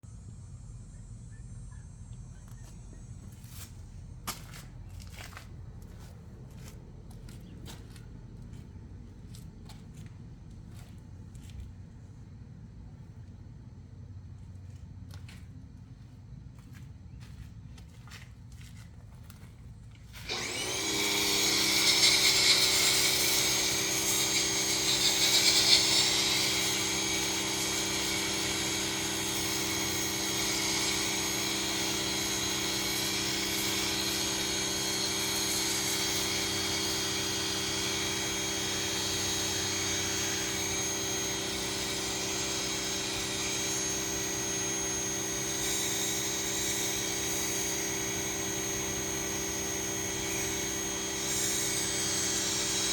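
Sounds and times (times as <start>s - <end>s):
hissing water spray: 20.2s - 52.9s
pressure washer running: 20.2s - 52.9s.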